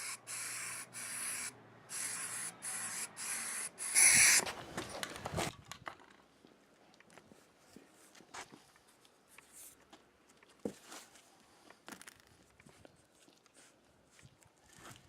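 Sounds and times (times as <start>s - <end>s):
spray paint can hissing: 0.0s - 4.4s.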